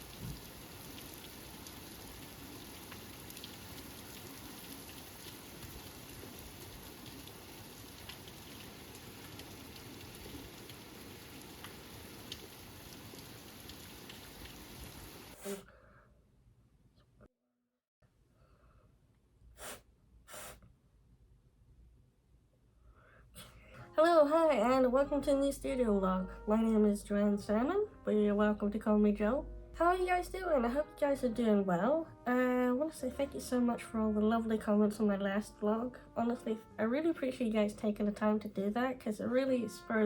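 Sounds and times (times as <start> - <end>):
raindrops ticking close by: 0.0 - 15.4
steady rain falling: 0.0 - 15.4.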